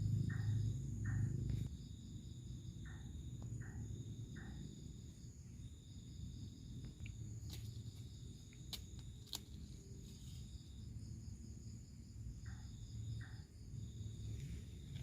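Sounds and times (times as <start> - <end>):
low rumble: 0.0 - 1.7
crickets trilling: 0.0 - 15.0.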